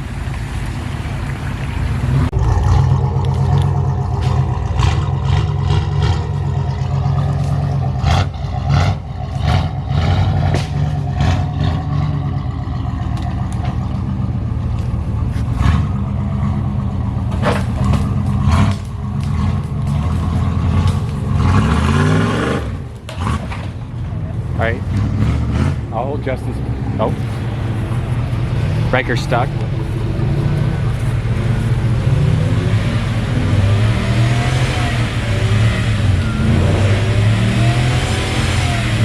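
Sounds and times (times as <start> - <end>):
vehicle knocks and clatter: 0.0 - 22.1
truck engine under load: 0.0 - 39.0.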